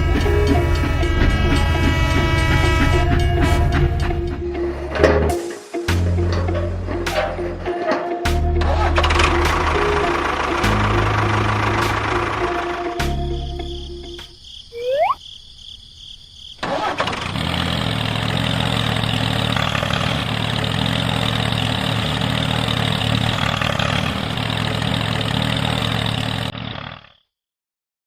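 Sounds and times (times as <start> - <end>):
engine running: 8.6 - 13.0, 16.6 - 27.1.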